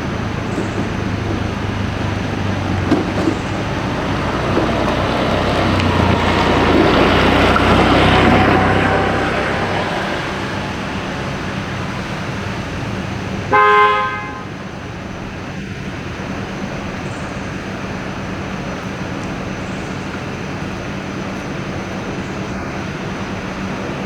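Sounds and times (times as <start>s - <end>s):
road traffic hum: 0.0s - 24.0s
short vehicle horn toot: 13.5s - 14.6s.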